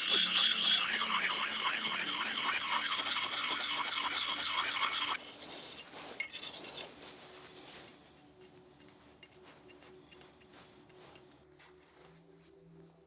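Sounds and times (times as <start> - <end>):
hand tool rasping wood: 0.0 - 11.4.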